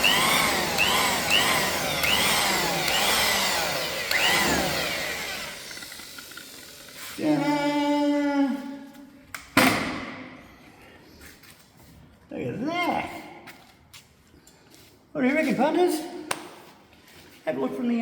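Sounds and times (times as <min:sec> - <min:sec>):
power tool buffing: 0:00.0 - 0:08.1.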